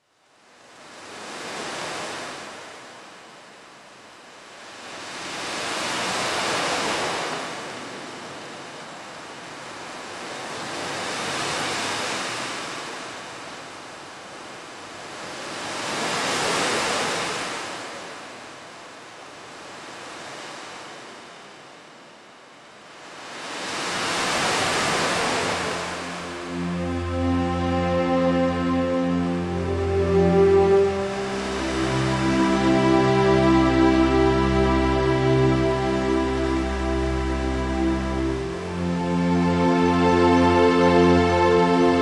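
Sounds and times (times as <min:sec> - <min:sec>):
sea waves washing onto shore: 0:22.9 - 0:42.0.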